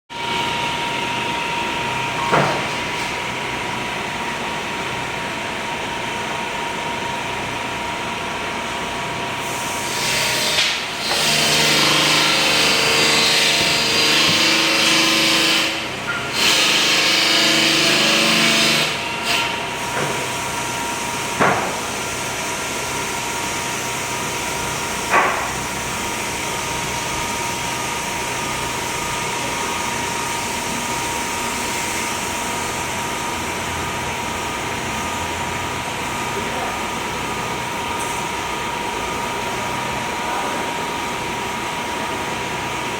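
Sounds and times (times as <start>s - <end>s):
power tool cutting wood: 9.5s - 19.6s
power tool whining: 9.8s - 19.6s.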